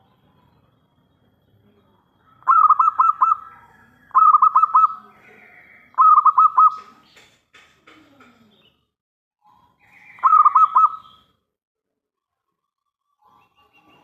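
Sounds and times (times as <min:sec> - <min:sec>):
dove cooing staccato: 0:02.4 - 0:05.1, 0:05.9 - 0:08.4, 0:10.2 - 0:11.0.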